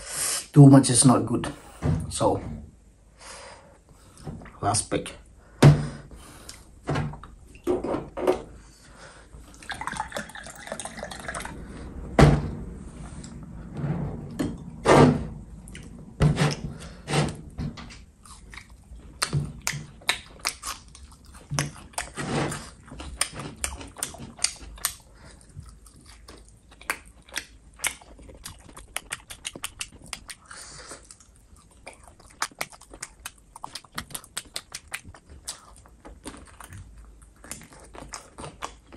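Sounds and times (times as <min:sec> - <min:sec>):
person chewing food: 0:15.6 - 0:17.4, 0:18.1 - 0:38.9.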